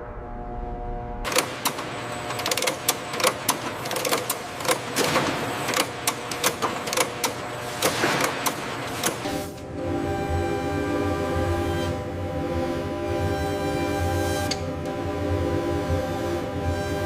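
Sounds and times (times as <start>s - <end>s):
steady machine noise: 0.0s - 17.0s
mechanical clicking and clacking: 1.3s - 9.7s.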